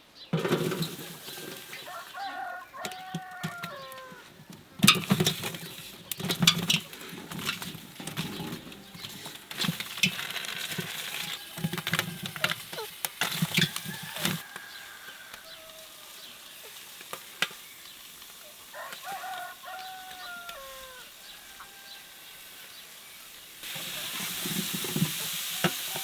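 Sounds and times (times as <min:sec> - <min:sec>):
irregular knocks and clatter: 0:00.3 - 0:01.7, 0:04.4 - 0:14.4.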